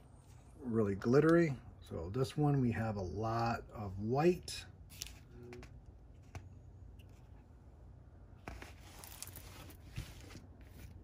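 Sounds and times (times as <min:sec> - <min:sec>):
scratchy plastic film rustle: 0:08.5 - 0:11.0.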